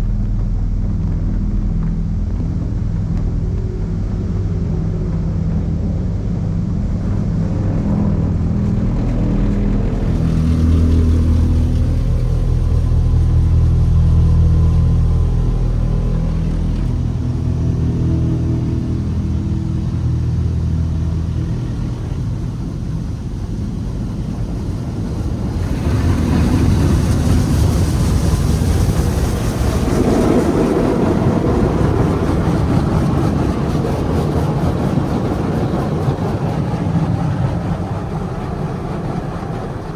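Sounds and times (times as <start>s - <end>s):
loud rushing hiss: 9.9s - 31.3s
car wash machinery humming: 9.9s - 39.9s.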